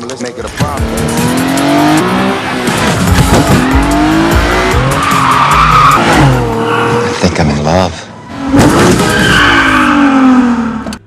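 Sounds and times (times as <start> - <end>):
car engines revving: 0.4 - 11.0
tyres squealing: 4.6 - 7.2.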